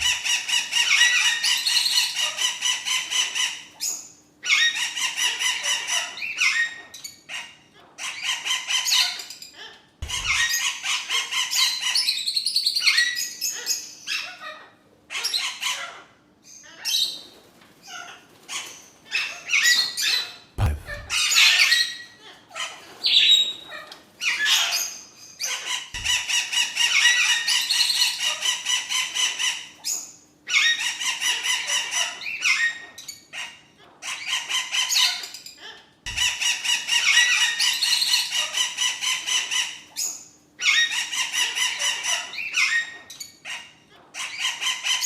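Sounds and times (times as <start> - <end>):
parrots chirping and squawking: 0.0 - 45.0
brief low thumps: 10.0 - 10.5, 20.6 - 21.2.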